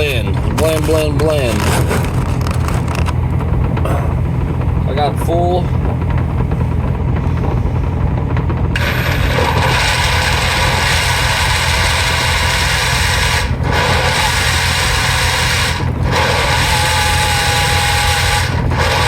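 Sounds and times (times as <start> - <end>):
steady low rumble: 0.0 - 19.0
electric blender pulsing: 8.7 - 19.0.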